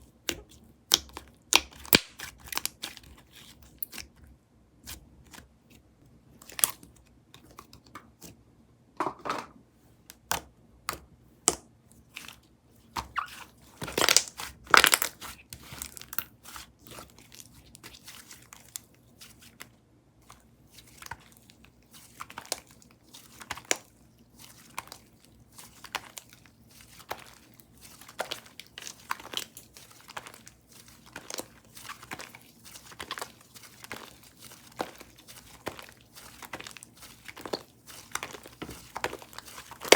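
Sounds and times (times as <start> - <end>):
slime squished by hand: 13.0 - 19.6, 22.0 - 39.9.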